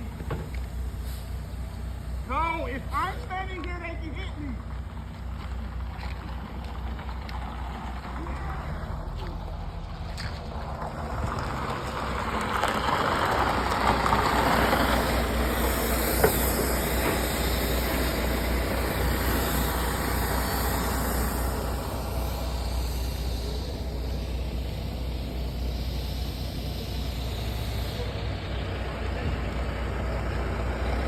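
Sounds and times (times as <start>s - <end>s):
truck diesel engine rumbling: 0.0s - 31.0s.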